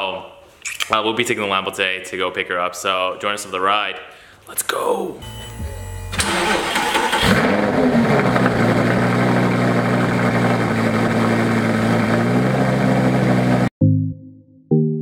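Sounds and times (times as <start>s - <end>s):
car engine starting and idling: 5.8s - 13.7s.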